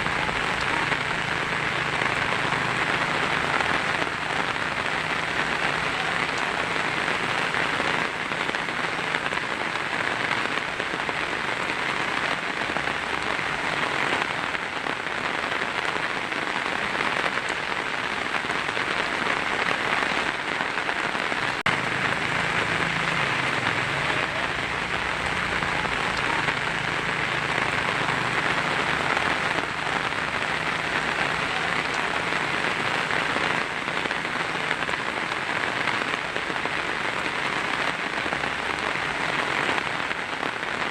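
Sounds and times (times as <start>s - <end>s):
heavy rain on a tin roof: 0.0s - 40.9s.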